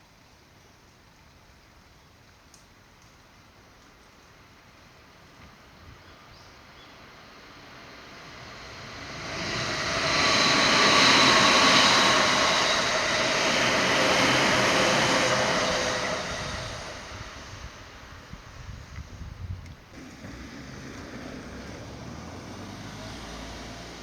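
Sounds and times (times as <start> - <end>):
passing vehicle engine rushing: 7.7 - 17.8, 20.0 - 24.0.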